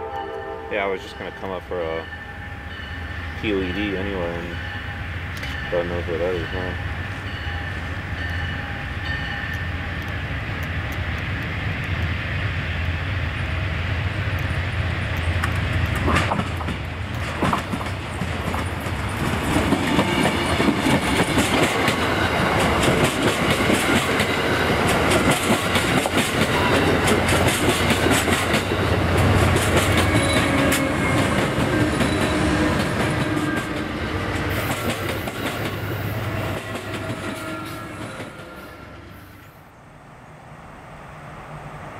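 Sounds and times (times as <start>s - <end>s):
train engine drone: 0.0s - 41.9s
wheels clacking over rail joints: 15.2s - 38.6s.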